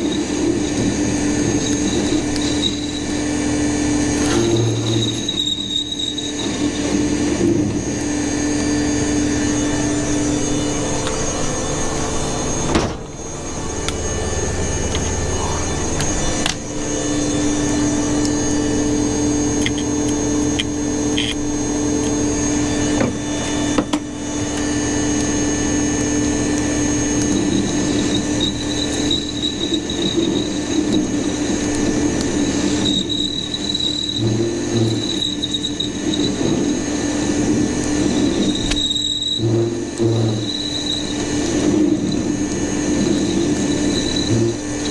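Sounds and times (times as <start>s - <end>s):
power tool humming and whining: 0.0s - 44.9s
high squealing tone: 4.2s - 24.8s, 27.5s - 37.0s.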